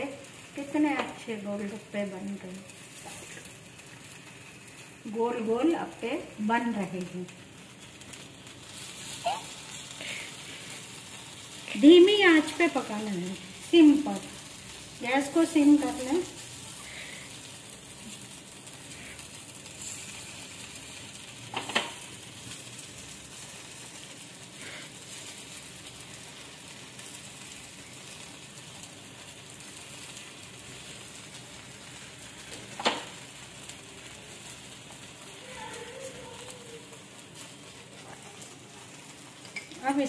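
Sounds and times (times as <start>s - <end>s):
batter sizzling softly in a pan: 0.0s - 40.0s.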